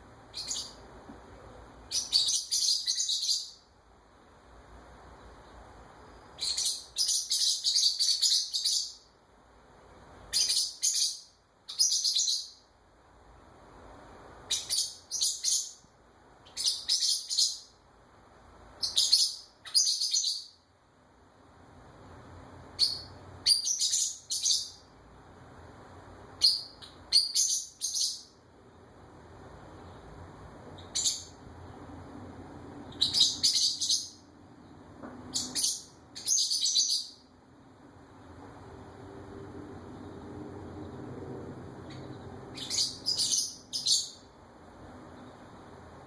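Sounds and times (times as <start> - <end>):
wren singing outside: 0.0 - 1.0, 1.6 - 12.8, 14.1 - 18.1, 18.7 - 20.7, 22.7 - 25.0, 26.3 - 28.9, 29.6 - 37.4, 39.8 - 45.9
pet bird chirping: 0.3 - 0.9, 1.9 - 3.6, 6.2 - 9.1, 10.3 - 12.6, 14.5 - 15.8, 16.4 - 17.7, 18.8 - 20.6, 22.8 - 24.9, 26.4 - 28.4, 30.8 - 31.4, 32.9 - 34.3, 35.3 - 37.2, 41.8 - 44.3.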